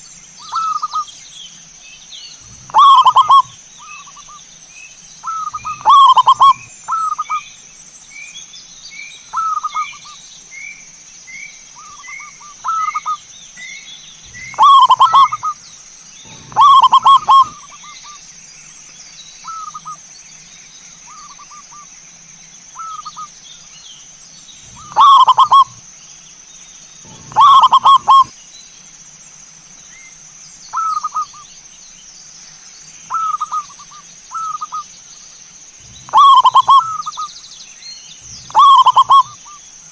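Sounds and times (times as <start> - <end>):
bird chirping: 0.0 - 28.9, 29.8 - 39.8
doves cooing: 2.4 - 4.3, 5.2 - 7.4, 14.2 - 15.6, 16.2 - 18.2, 24.6 - 25.8, 27.0 - 28.3, 35.8 - 37.3, 38.2 - 39.6
steady high whine: 14.0 - 18.2.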